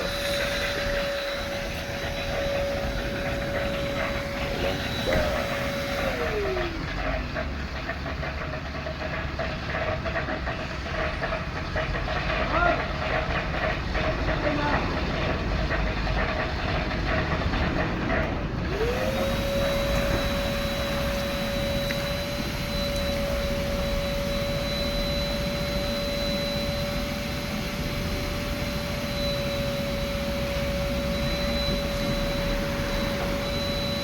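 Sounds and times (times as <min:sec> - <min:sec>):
vacuum motor whining: 0:00.0 - 0:07.4, 0:18.2 - 0:34.0
machine noise: 0:00.0 - 0:34.0.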